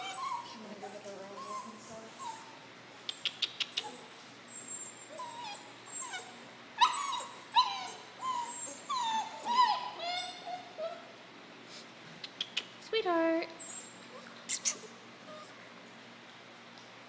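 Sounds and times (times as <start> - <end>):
puppy yipping and whimpering: 0.0 - 11.2, 13.6 - 15.7.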